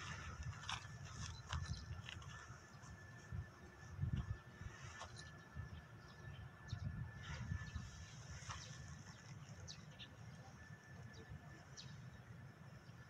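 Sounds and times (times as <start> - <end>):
small birds chirping: 7.6 - 13.0.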